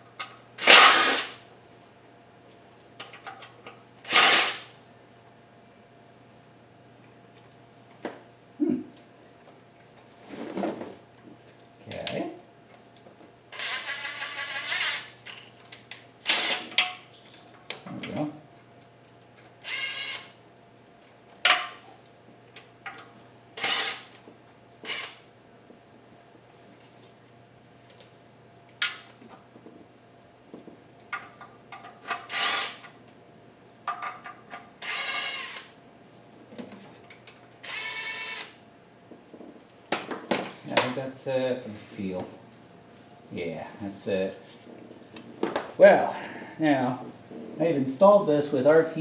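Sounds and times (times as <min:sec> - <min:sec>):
power tool bursts: 0:00.6 - 0:01.4, 0:04.0 - 0:04.7, 0:13.5 - 0:15.2, 0:16.2 - 0:16.7, 0:19.6 - 0:20.3, 0:23.6 - 0:24.1, 0:24.8 - 0:25.2, 0:32.2 - 0:32.9, 0:34.8 - 0:35.7, 0:37.6 - 0:38.6.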